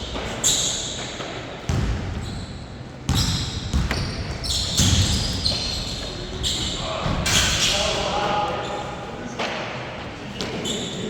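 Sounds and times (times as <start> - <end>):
shoe squeaks: 0.1 - 1.2, 2.2 - 7.9, 10.5 - 11.0
basketball bouncing on court: 1.7 - 2.4, 3.1 - 5.8.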